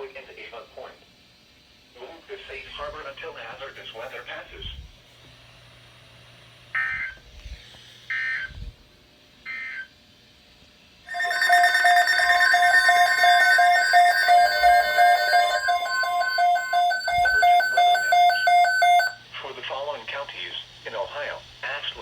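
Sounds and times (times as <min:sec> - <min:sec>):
pulsing electronic alert tone: 0:11.1 - 0:19.2.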